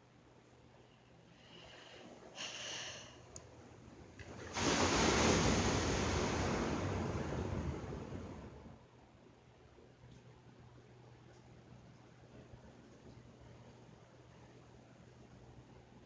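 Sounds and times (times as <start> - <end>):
surf rushing: 4.2 - 8.8
wind noise: 4.6 - 8.8.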